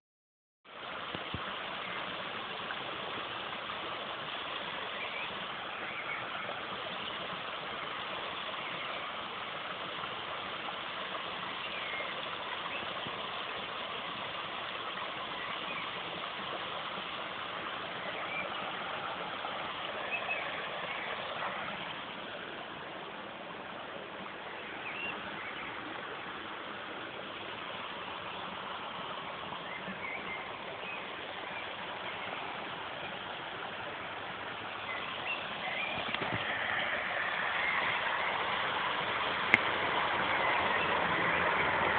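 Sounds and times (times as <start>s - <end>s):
flowing water rushing: 0.7s - 41.9s
faint bird chirps: 18.0s - 18.7s, 24.5s - 25.9s, 29.6s - 32.4s, 34.8s - 36.4s.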